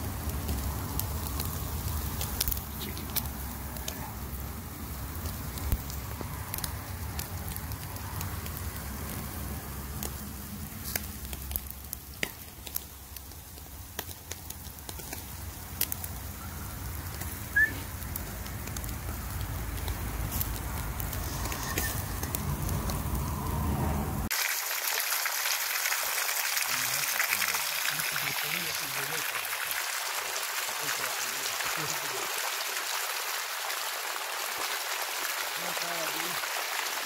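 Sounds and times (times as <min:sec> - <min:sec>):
grill fire crackling: 0:00.0 - 0:37.0
sharp pops: 0:10.8 - 0:12.9
high squeak: 0:21.3 - 0:22.2.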